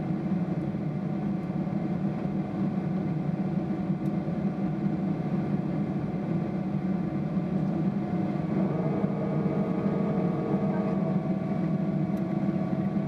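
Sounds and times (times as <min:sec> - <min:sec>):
airliner cabin drone: 0:00.0 - 0:13.0
faint steady tones: 0:07.6 - 0:13.0
higher hums: 0:08.2 - 0:13.0.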